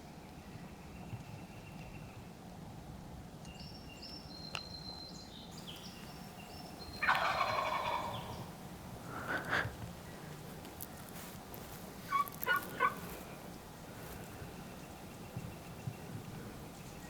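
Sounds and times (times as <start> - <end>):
turkey gobbling: 6.8 - 11.2, 11.8 - 16.9.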